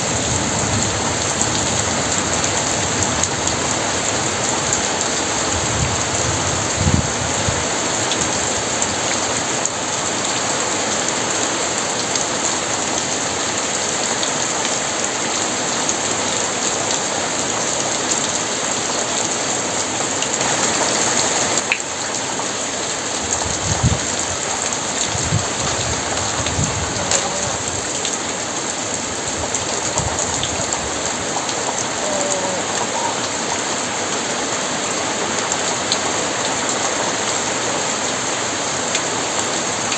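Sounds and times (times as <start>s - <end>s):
heavy rain pouring: 0.0s - 39.9s
thunder rumbles: 23.3s - 28.0s, 29.0s - 33.5s.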